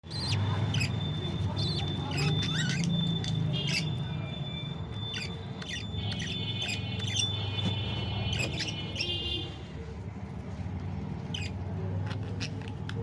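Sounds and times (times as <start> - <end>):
budgerigars chirping: 0.0 - 4.0, 5.0 - 9.1, 11.3 - 11.6.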